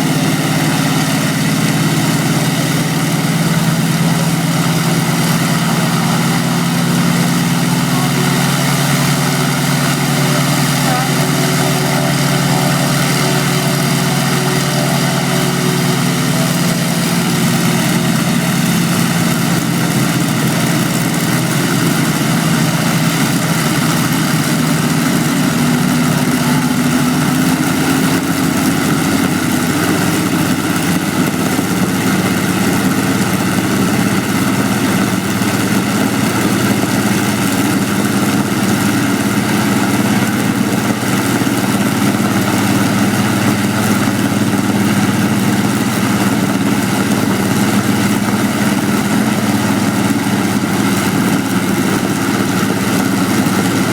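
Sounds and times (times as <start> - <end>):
aeroplane engines droning: 0.0 - 53.9.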